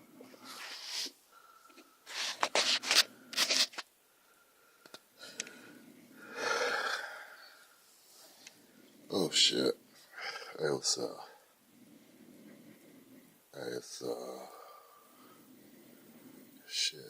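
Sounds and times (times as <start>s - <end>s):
man snoring: 6.3s - 7.2s.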